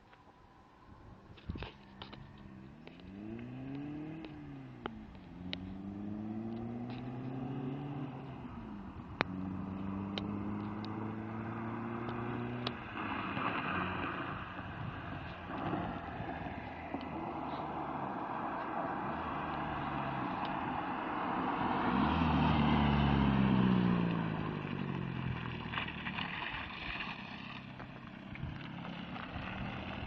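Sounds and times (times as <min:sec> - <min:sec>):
diesel engine revving: 0:02.9 - 0:14.4, 0:15.4 - 0:26.3.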